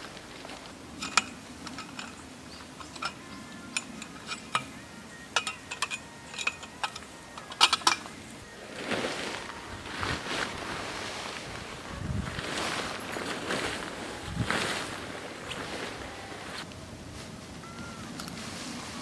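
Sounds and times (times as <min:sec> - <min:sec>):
faint ringing tone: 0:00.9 - 0:10.9, 0:17.6 - 0:19.0.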